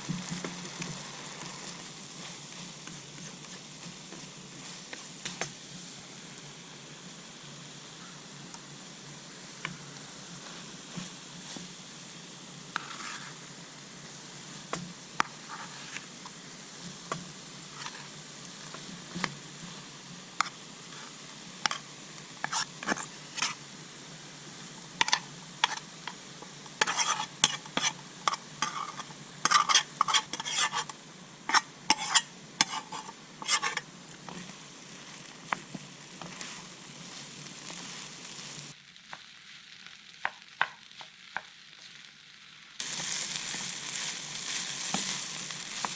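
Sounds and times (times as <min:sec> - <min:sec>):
rice sizzling in a pan: 0:00.0 - 0:45.9
spatula scraping against pan: 0:12.7 - 0:13.4, 0:15.2 - 0:19.8, 0:20.4 - 0:23.6, 0:24.7 - 0:38.1.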